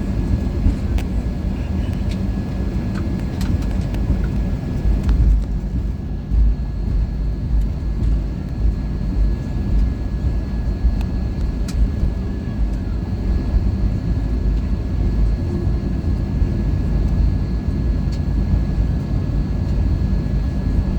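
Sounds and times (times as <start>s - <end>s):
airplane cabin rumble: 0.0s - 20.9s
light clicks and rattles: 0.7s - 6.4s.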